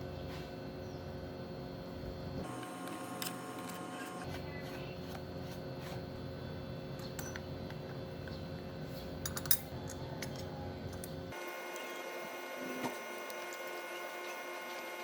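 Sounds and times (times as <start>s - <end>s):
metal tools clinking: 9.2s - 10.4s.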